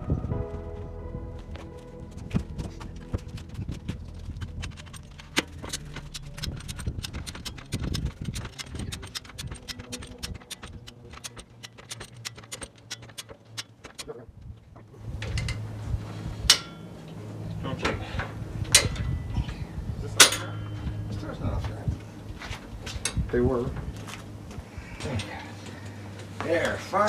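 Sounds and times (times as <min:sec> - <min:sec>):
metal tools clicking and knocking: 0:02.9 - 0:14.2, 0:15.2 - 0:15.7, 0:16.5 - 0:16.9, 0:18.7 - 0:19.2, 0:20.2 - 0:21.0.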